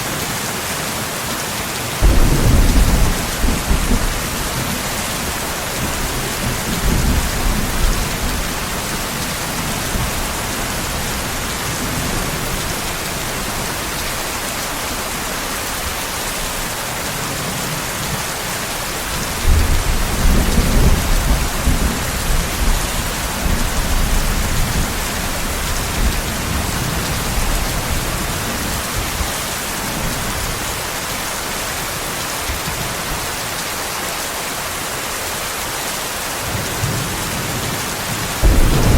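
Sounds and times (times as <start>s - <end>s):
steady rain: 0.0s - 38.9s
rolling thunder: 2.0s - 14.2s, 38.4s - 38.9s.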